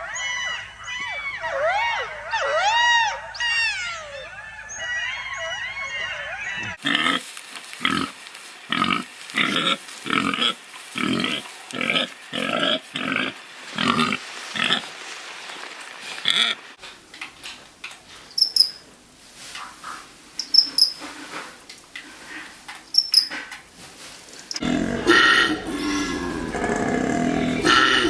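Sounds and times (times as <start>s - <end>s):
chorus of high arching calls: 0.0s - 14.8s, 16.2s - 28.0s
koala bellowing: 18.1s - 18.9s, 24.4s - 28.0s.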